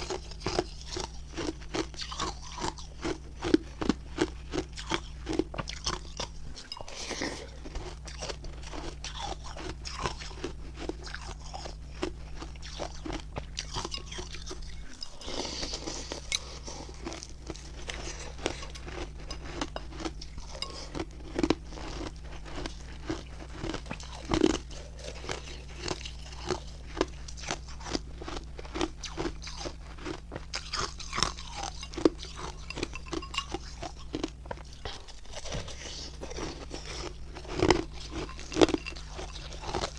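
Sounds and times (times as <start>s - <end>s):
ice being crunched and chewed: 0.0s - 39.9s
low steady hum: 0.0s - 39.9s.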